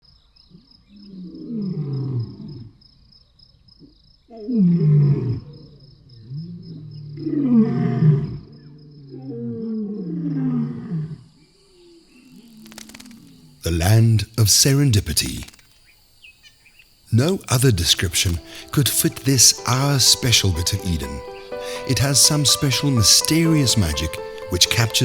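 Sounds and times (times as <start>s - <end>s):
lion roaring: 1.1s - 2.7s, 4.3s - 11.3s
faint high-pitched pulsing: 11.4s - 25.0s.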